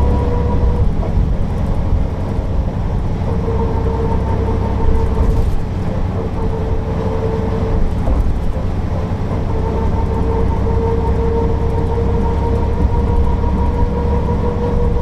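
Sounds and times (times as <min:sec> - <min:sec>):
bus diesel engine rumble: 0:00.0 - 0:15.0
steady whine: 0:00.0 - 0:15.0.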